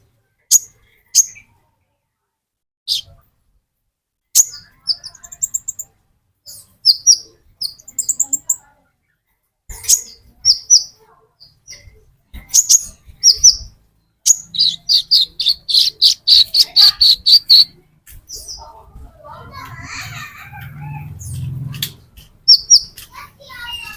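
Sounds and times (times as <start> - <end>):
bird high chirps: 0.5 - 1.6, 2.9 - 3.2, 4.4 - 8.7, 9.7 - 18.8, 22.4 - 23.9
bird fast repeated notes: 14.3 - 17.8.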